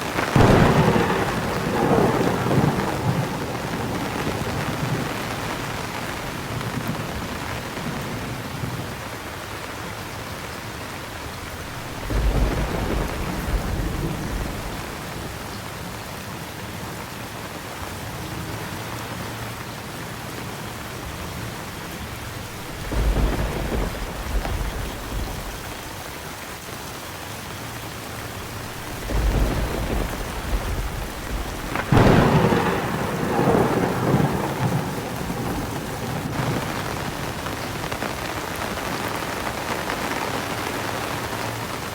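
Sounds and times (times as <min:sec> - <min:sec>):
thunder rolling: 0:00.0 - 0:09.0, 0:11.1 - 0:15.7, 0:21.9 - 0:26.1, 0:28.2 - 0:40.5
heavy rain: 0:00.0 - 0:41.9.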